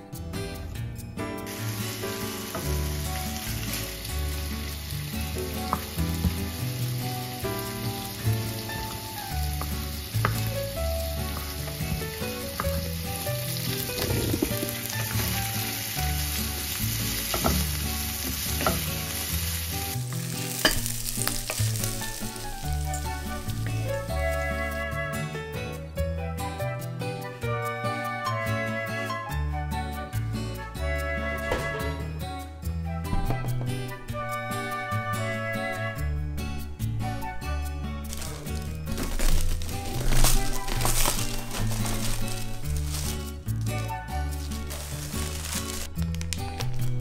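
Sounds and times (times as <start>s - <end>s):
sausages sizzling in a frying pan: 1.5s - 24.5s.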